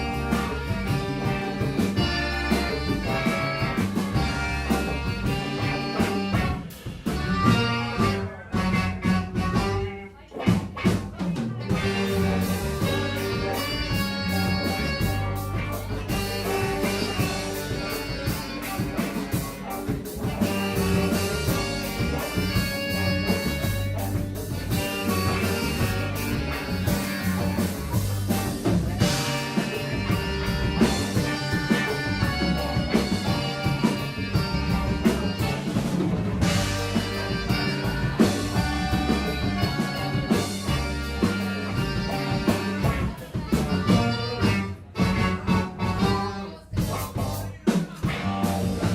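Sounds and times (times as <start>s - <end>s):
drum kit fast beat: 0.0s - 48.9s
live band playing: 0.0s - 48.9s.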